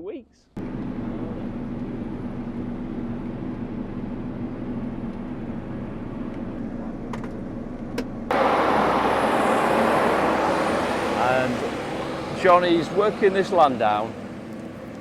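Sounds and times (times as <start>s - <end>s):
rushing noise: 8.3s - 14.2s
tractor engine under load: 8.3s - 15.0s.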